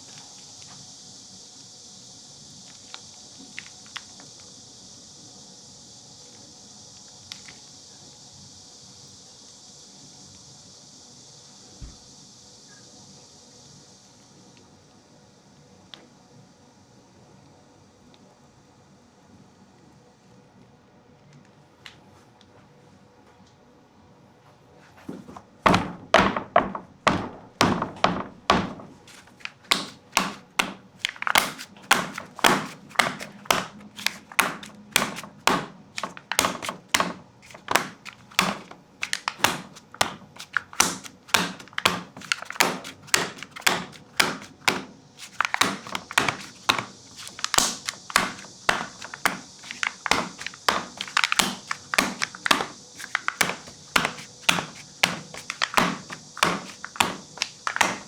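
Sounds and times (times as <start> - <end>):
sharp knocks: 25.7 - 58.0.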